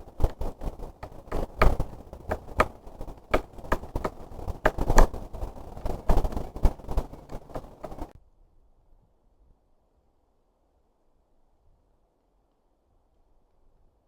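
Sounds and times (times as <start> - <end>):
woodpecker pecking wood: 0.0 - 8.1.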